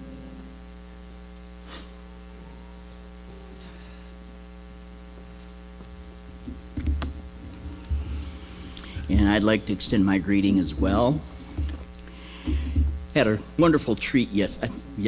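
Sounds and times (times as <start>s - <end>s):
electrical mains hum: 0.0s - 15.0s
low thumps: 6.0s - 13.5s.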